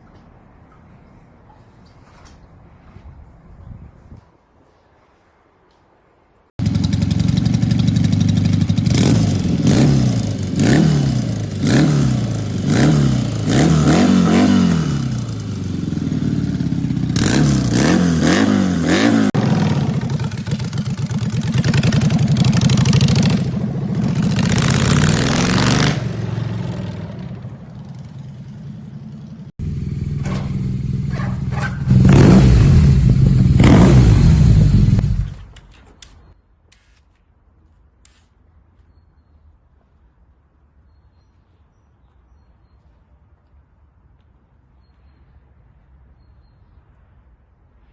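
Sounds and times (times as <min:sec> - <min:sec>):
motorcycle engine revving: 0:06.6 - 0:35.5.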